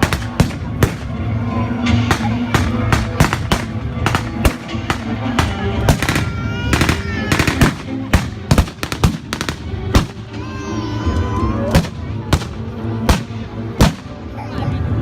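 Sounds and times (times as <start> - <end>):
background music: 0.0 - 15.0
voices: 0.0 - 15.0
blank gunshots: 2.1 - 6.2.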